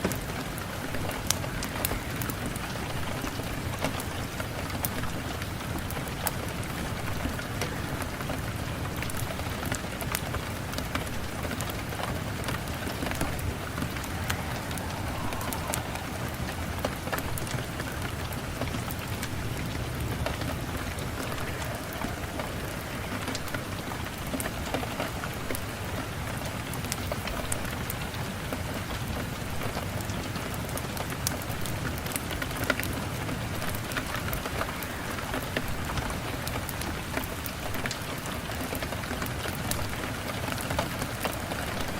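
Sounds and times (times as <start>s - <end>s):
steady rain falling: 0.0s - 41.9s
wood fire crackling: 0.1s - 27.6s.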